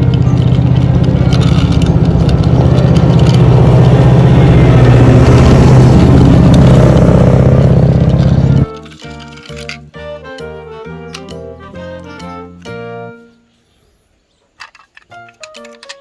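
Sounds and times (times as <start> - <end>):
car engine droning: 0.0 - 9.0.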